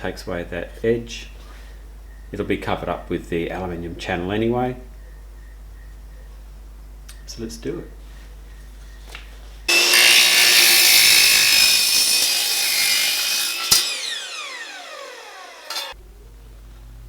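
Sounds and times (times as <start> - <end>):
power saw cutting aluminium: 9.7 - 16.0
saw blade spinning down: 9.7 - 16.0.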